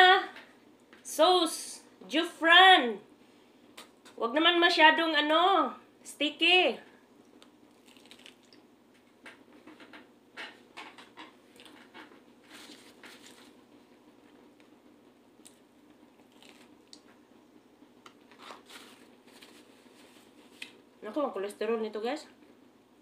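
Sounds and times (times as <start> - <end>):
person chewing food: 7.3 - 8.7, 11.5 - 13.6, 16.2 - 17.2.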